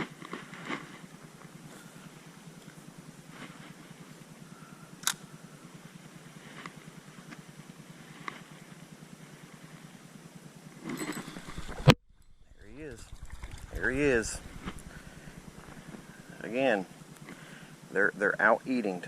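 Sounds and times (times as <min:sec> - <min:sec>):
sharp clicks: 0:05.0 - 0:05.2, 0:11.5 - 0:16.0.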